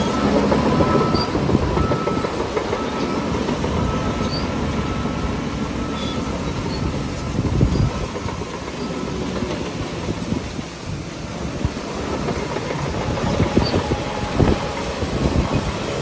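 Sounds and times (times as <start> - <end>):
diesel engine running: 0.0 - 16.0
steel tracks clattering: 0.0 - 16.0
high squeal: 3.9 - 5.1, 13.0 - 15.7.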